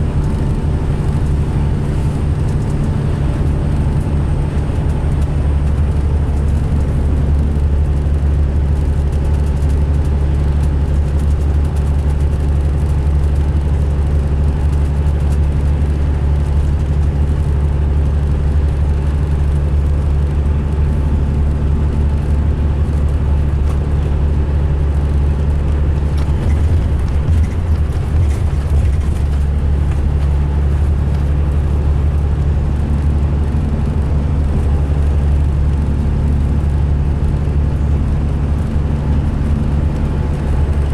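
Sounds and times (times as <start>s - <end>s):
diesel engine low drone: 0.0s - 40.9s.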